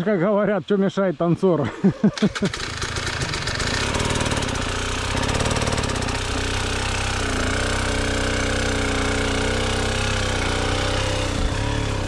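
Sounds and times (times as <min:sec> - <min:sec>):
motorcycle engine running: 0:02.4 - 0:12.0.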